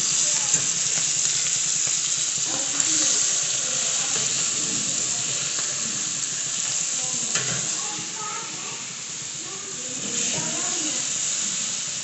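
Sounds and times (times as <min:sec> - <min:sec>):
fish sizzling in a pan: 0:00.0 - 0:12.0
sharp popping of frying oil: 0:00.0 - 0:12.0.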